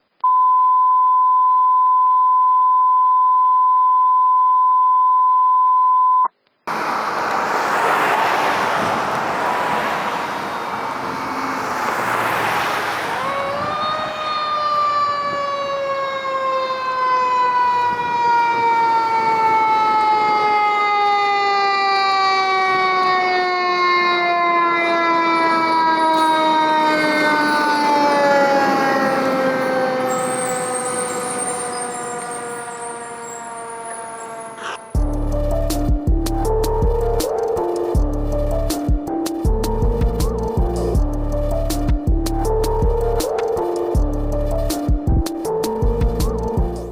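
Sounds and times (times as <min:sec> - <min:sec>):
fire engine siren wailing: 0:06.7 - 0:35.6.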